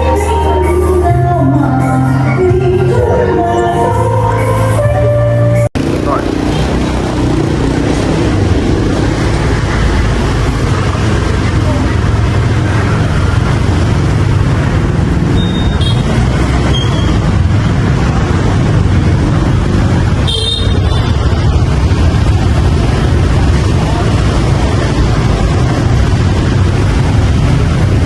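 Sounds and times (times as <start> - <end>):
rumble of traffic engines: 0.0 - 28.0
high horn toots: 20.2 - 21.1.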